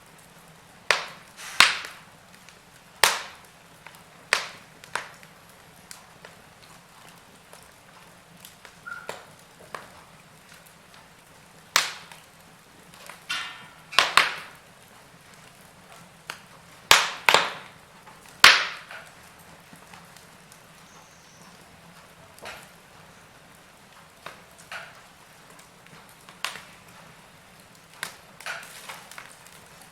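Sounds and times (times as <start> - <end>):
wood fire crackling: 0.0 - 29.9
sharp loud pops: 0.9 - 2.0, 16.9 - 17.7, 18.4 - 19.0
brief hiss: 1.3 - 1.8.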